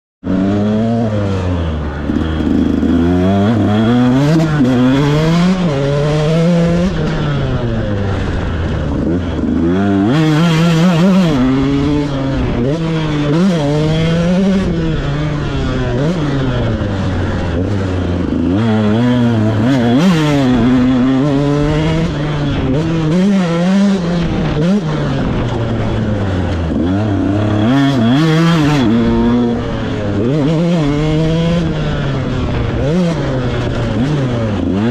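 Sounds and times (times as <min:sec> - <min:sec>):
motocross bike engine revving: 0:00.2 - 0:34.9.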